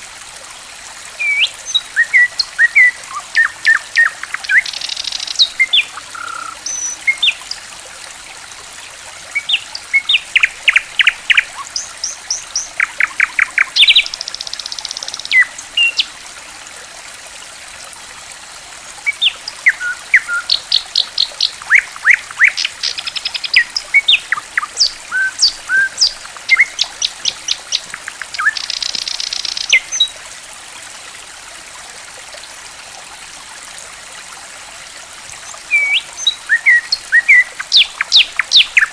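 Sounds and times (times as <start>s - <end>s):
trickle of flowing water: 0.0s - 38.9s
songbirds singing and calling: 1.2s - 7.6s, 9.3s - 16.1s, 19.0s - 30.2s, 35.4s - 38.9s.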